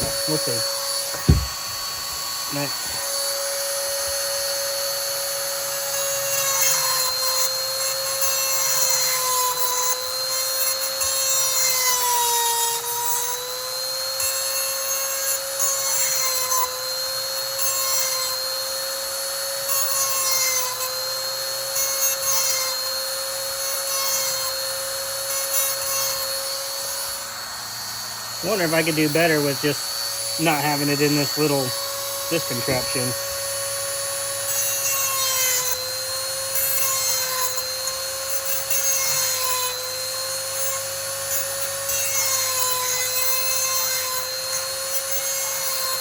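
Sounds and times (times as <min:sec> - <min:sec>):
grinding stone rasping on chain: 0:00.0 - 0:46.0
small motor whining: 0:00.0 - 0:46.0.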